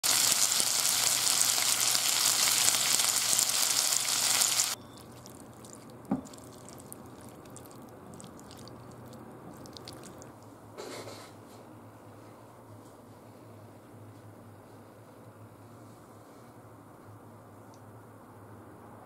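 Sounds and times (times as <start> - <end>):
chicken sizzling in oil: 0.0 - 10.3
chopsticks stirring in glass bowl: 4.9 - 10.3.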